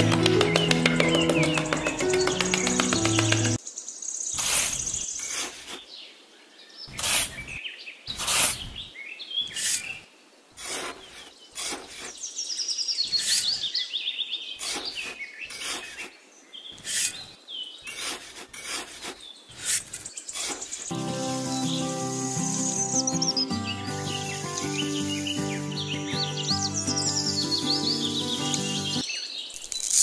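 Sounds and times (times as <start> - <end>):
birds chirping: 0.0 - 29.6
trowel scraping dry sand: 4.3 - 5.9, 6.9 - 10.0, 10.6 - 12.3, 13.0 - 13.7, 14.6 - 16.2, 16.8 - 21.0.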